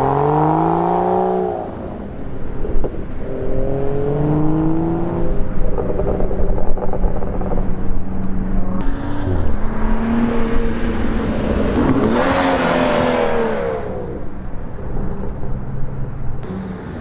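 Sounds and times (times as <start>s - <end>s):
car exhaust passing by: 8.7s - 17.0s.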